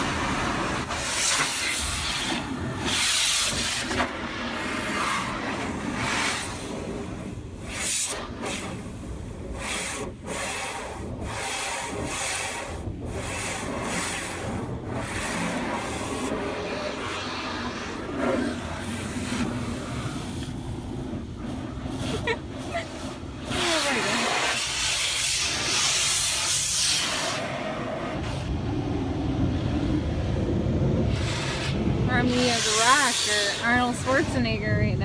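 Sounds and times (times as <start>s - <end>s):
water spray: 0.0s - 28.6s, 31.0s - 34.9s
hissing bursts: 7.6s - 28.6s, 31.0s - 34.8s.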